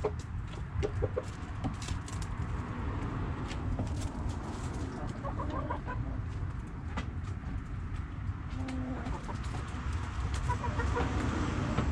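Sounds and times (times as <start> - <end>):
hens clucking: 0.0 - 1.4, 4.5 - 6.6, 8.6 - 11.4.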